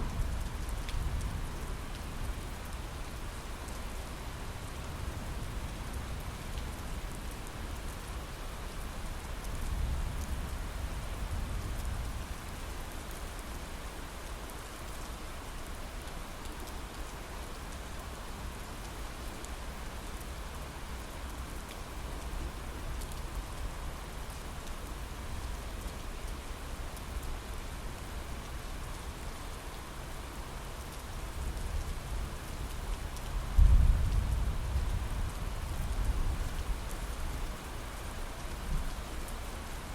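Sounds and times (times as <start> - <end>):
heavy rain on a window: 0.0 - 39.9
thunder rumble: 33.6 - 35.6.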